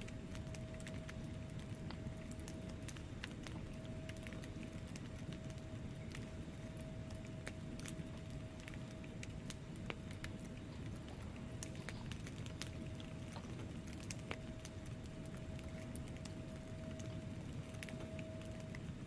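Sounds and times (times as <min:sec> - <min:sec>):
faint steady tone: 0:00.0 - 0:19.0
wood fire crackling and popping: 0:00.0 - 0:19.0.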